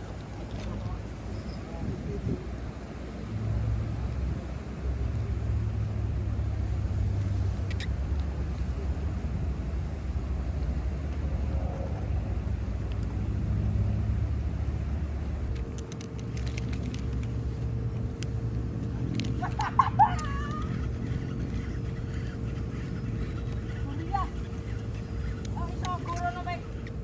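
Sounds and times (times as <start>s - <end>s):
engine rumbling: 0.0s - 27.0s.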